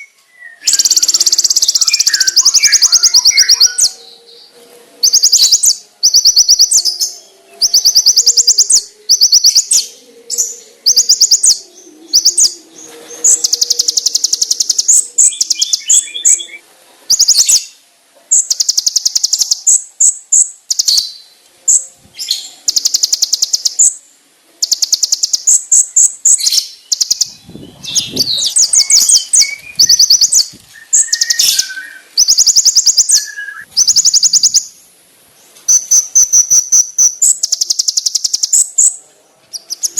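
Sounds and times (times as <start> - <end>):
sunbird high-pitched trills: 0.0 - 17.7, 18.3 - 24.0, 24.6 - 34.7, 35.7 - 39.9
bird chirps: 0.0 - 24.0, 24.6 - 34.8, 35.6 - 39.9.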